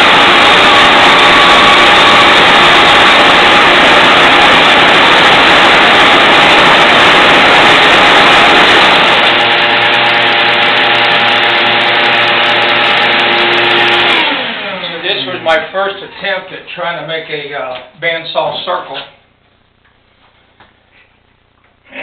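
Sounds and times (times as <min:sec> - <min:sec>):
band saw cutting wood: 0:00.0 - 0:16.4
band saw winding down: 0:00.0 - 0:16.4.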